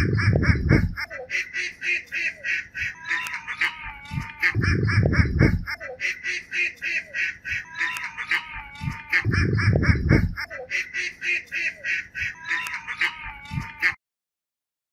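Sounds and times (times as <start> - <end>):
low rumbles: 0.0 - 1.0, 4.2 - 5.7, 9.2 - 10.4.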